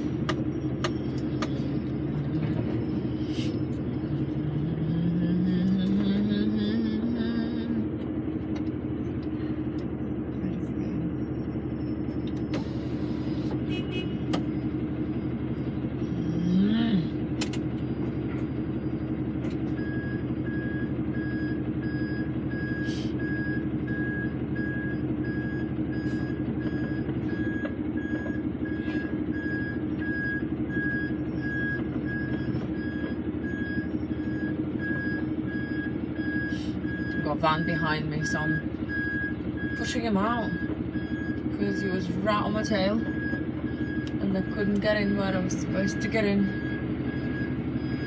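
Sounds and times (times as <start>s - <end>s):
diesel truck engine running: 0.0s - 48.0s
reversing alarm beeping: 11.0s - 48.0s.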